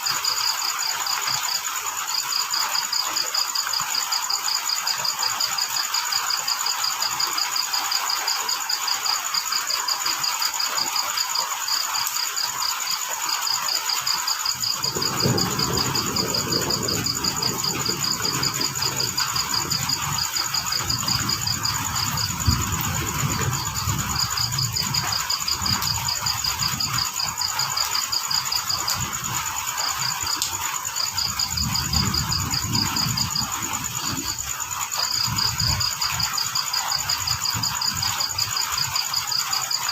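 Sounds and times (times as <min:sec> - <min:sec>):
crickets chirping: 0:00.0 - 0:39.9
high insect drone: 0:00.0 - 0:39.9
rain hissing: 0:00.0 - 0:39.9.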